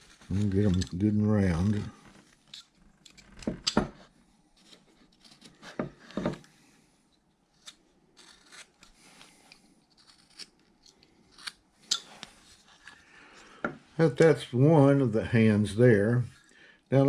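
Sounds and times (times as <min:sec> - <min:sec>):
carving tool cutting wood: 0:07.6 - 0:09.0, 0:10.0 - 0:10.6.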